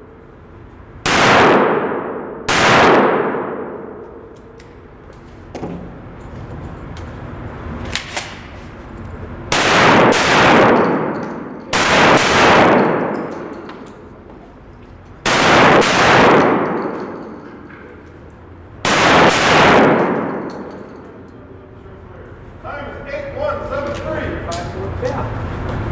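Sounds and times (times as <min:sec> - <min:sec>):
gunshots with echoing tail: 0:01.1 - 0:04.4, 0:09.5 - 0:14.1, 0:15.2 - 0:17.7, 0:18.8 - 0:21.2.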